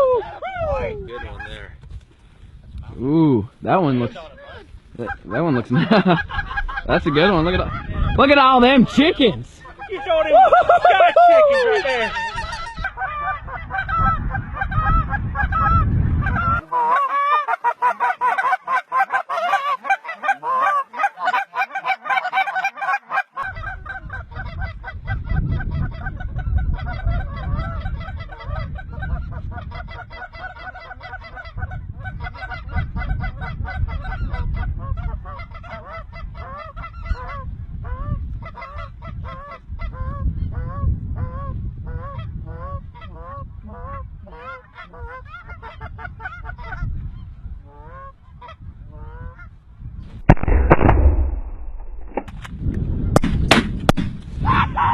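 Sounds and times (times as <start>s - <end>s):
wind on microphone: 0.0s - 16.7s, 23.4s - 54.9s
geese honking: 6.3s - 25.0s.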